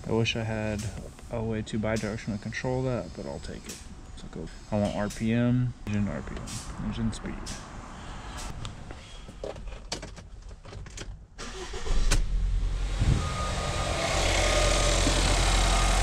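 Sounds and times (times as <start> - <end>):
car engine starting and idling: 10.6 - 16.0.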